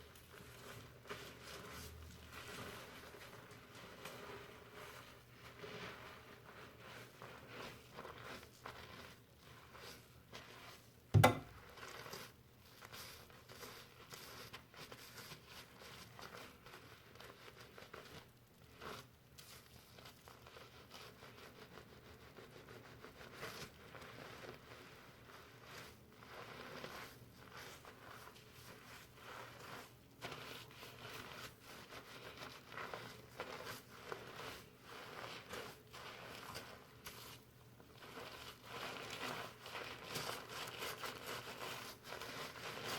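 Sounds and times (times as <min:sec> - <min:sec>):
sharp loud thump: 0:11.2 - 0:11.6.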